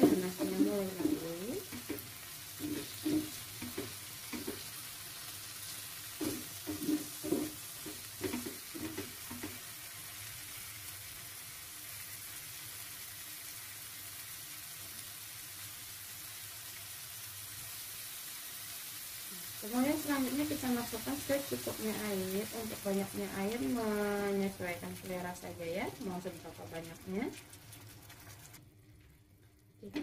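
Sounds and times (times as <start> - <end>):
spatula stirring and scraping: 0.0 - 5.0, 5.6 - 9.7, 26.2 - 28.6
food sizzling in oil: 0.0 - 28.6.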